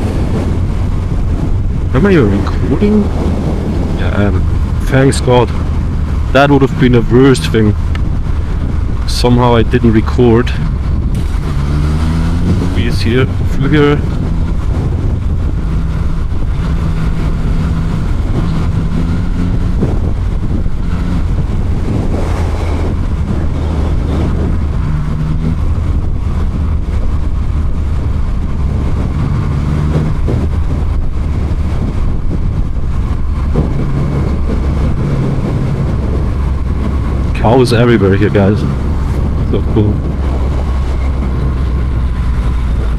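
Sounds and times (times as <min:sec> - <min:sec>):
motorcycle engine droning: 0:00.0 - 0:42.9
wind noise: 0:00.0 - 0:42.9.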